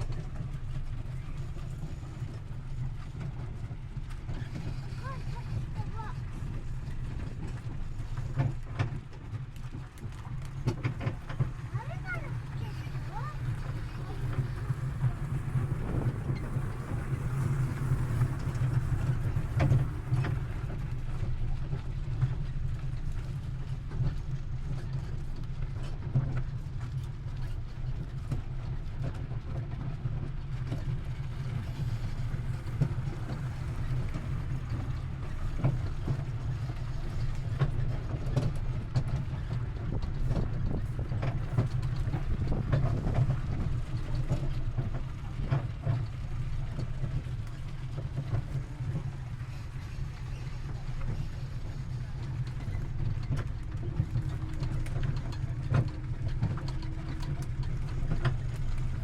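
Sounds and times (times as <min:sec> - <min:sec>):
wind buffeting microphone: 0:09.4 - 0:22.1, 0:30.2 - 0:59.0.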